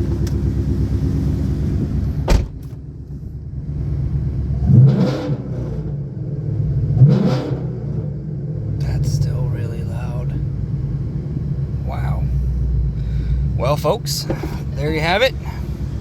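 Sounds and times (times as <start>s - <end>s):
car engine running: 0.0s - 4.9s, 8.3s - 16.0s
engine revving: 3.6s - 9.0s.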